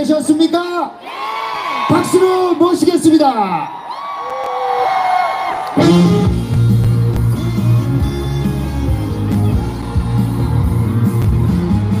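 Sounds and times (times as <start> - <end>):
trot song over sound system: 5.8 - 12.0.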